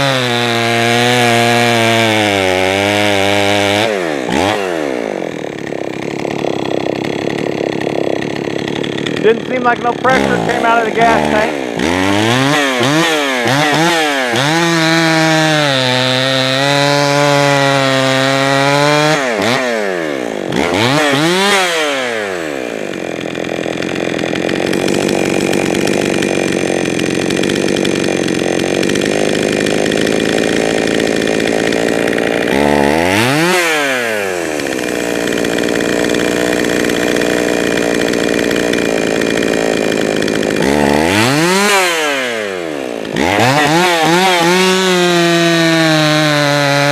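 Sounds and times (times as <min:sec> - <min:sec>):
chainsaw revving: 0:00.0 - 0:46.9.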